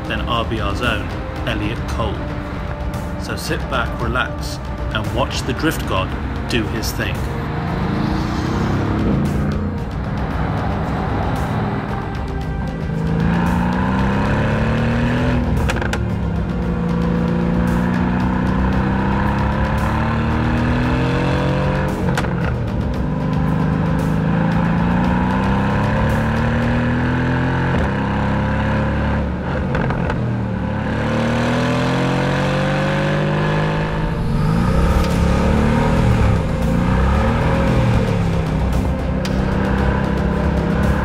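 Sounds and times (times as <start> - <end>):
car engine revving: 0.0 - 41.0
music: 0.0 - 41.0.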